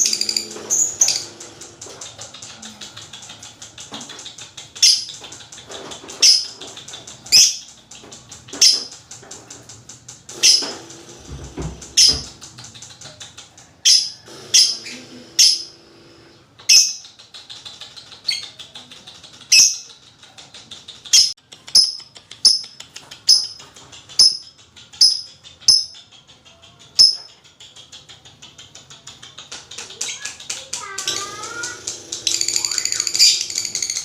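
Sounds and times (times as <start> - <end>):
bird chattering trill: 0.0 - 3.6, 13.8 - 15.8, 21.2 - 34.0
shrill bird chirps: 32.3 - 34.0.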